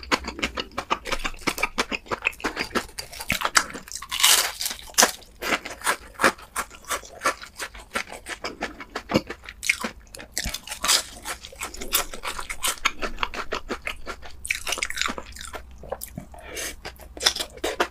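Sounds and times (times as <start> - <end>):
chewing crispy fried food: 0.0 - 17.9.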